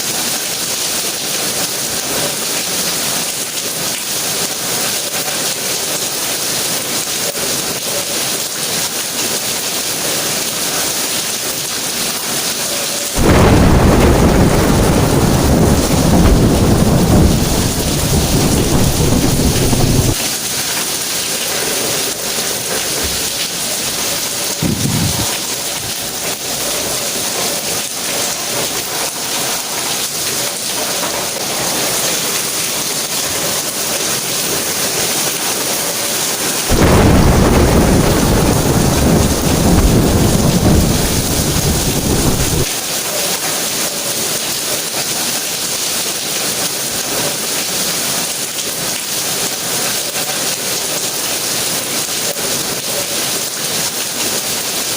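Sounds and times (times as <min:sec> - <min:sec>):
steady rain falling: 0:00.0 - 0:54.9
thunder rumbling: 0:13.2 - 0:20.2, 0:22.6 - 0:27.4, 0:36.7 - 0:42.7.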